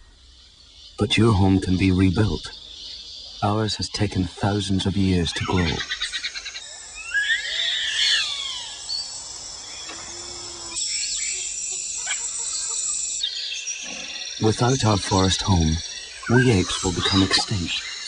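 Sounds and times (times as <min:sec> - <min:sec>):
high insect drone: 0:00.0 - 0:18.0
wavering wild animal calls: 0:05.1 - 0:18.0.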